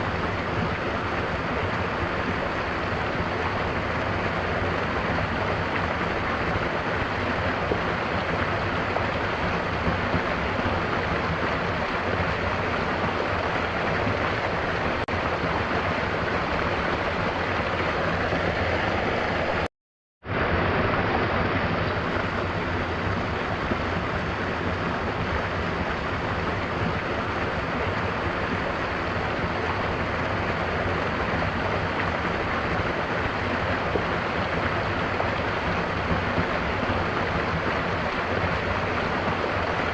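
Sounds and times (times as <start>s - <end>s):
waterfall rushing: 0.0s - 19.7s, 20.3s - 39.9s.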